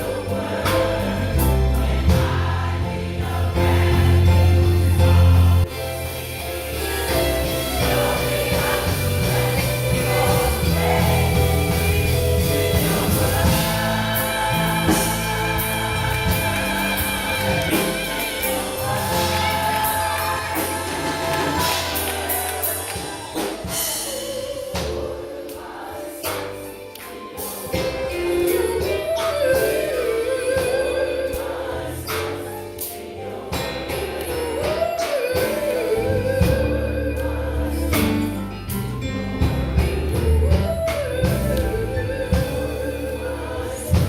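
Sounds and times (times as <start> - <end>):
bass line: 0.0 - 24.4, 35.4 - 44.0
gospel choir singing: 0.0 - 44.0
instrumental accompaniment: 0.0 - 44.0
percussion strikes: 0.0 - 44.0.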